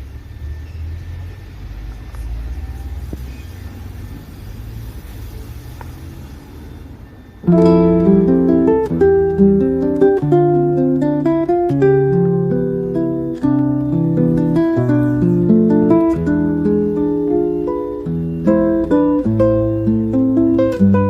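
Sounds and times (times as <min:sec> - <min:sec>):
acoustic guitar music: 0:07.4 - 0:21.0.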